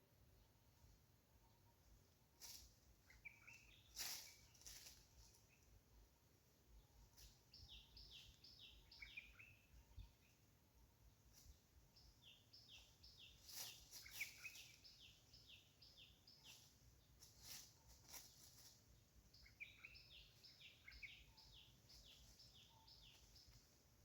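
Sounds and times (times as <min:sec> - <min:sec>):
high whistled bird song: 0:07.5 - 0:10.1, 0:12.6 - 0:16.6, 0:19.4 - 0:23.5.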